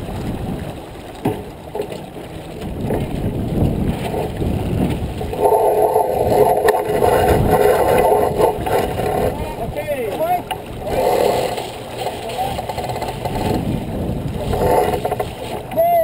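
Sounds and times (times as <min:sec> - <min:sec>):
water noise aboard sailboat: 0:00.0 - 0:16.0
wind: 0:00.0 - 0:16.0
steady whirring: 0:04.6 - 0:15.8.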